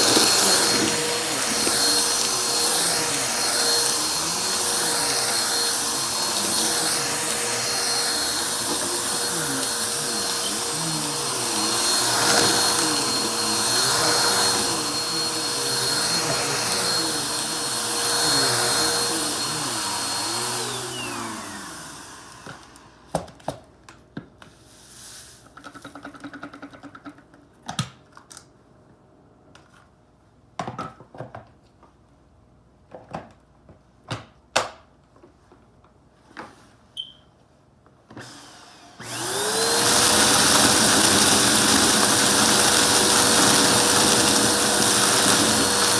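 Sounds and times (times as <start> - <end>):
vacuum cleaner motor whining: 0.0 - 23.4, 38.1 - 45.9.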